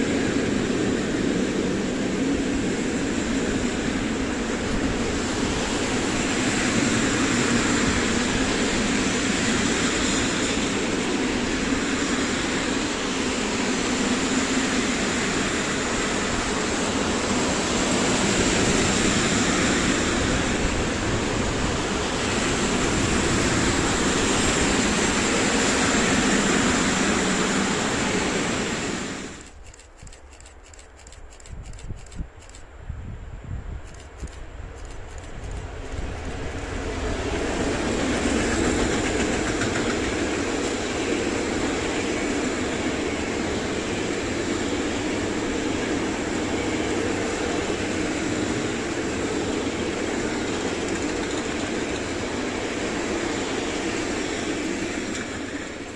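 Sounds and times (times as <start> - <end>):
freight train wheels rumbling: 0.0 - 55.9
faint clicks: 29.4 - 32.6.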